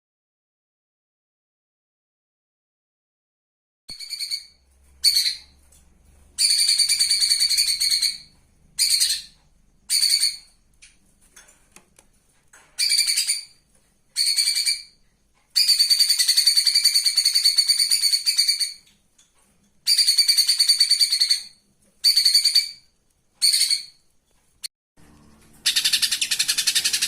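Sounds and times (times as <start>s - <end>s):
songbird singing rattling notes: 6.4s - 11.0s, 25.3s - 27.0s.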